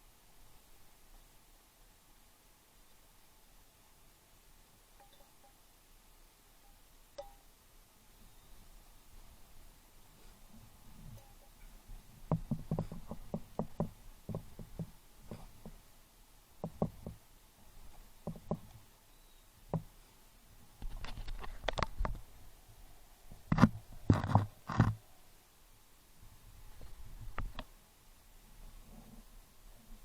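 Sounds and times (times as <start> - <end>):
knocks: 12.3 - 15.8, 16.6 - 17.2, 18.2 - 18.7.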